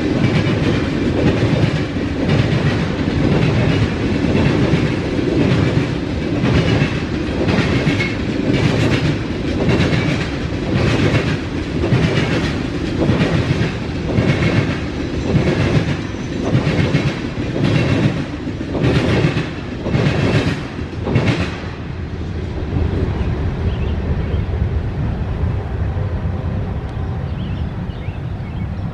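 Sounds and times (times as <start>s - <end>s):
train wheels clacking over rail: 0.0s - 22.0s
continuous train rumble: 0.0s - 28.9s.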